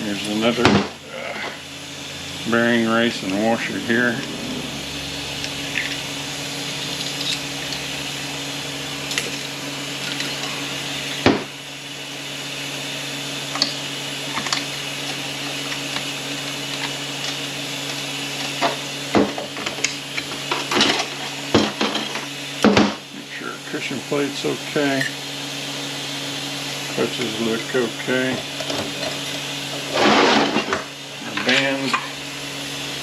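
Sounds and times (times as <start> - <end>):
steady low hum: 0.0 - 22.3.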